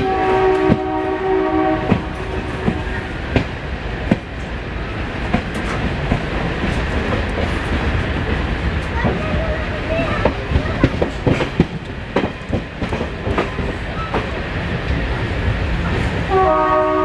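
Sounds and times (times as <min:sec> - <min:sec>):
train horn: 0:00.0 - 0:03.2, 0:16.3 - 0:17.0
train running rumble: 0:00.0 - 0:17.0
wheels clacking over rail joints: 0:01.8 - 0:16.3.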